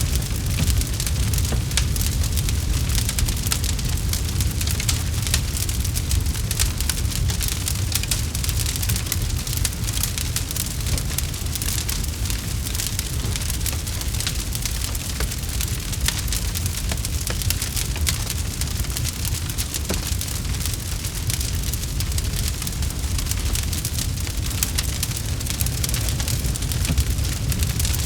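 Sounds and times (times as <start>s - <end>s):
low rumble: 0.0s - 7.3s
campfire crackling: 0.0s - 28.0s.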